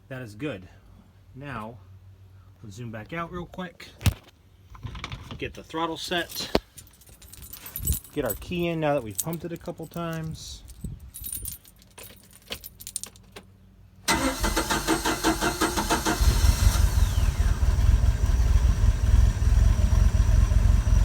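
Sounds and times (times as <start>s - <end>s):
starter motor cranking: 14.1s - 17.8s.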